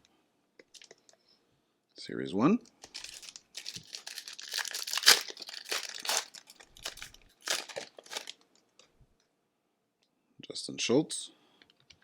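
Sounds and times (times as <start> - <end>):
wrapper tearing and crinkling: 2.8 - 8.4.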